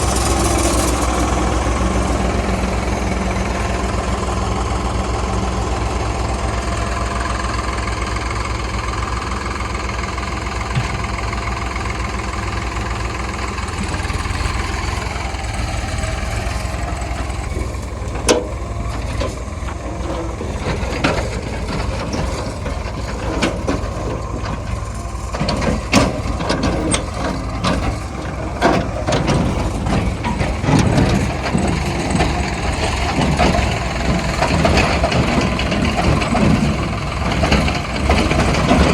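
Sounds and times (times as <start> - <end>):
diesel engine running: 0.0 - 38.9
sharp knocks and clanks: 17.2 - 38.9.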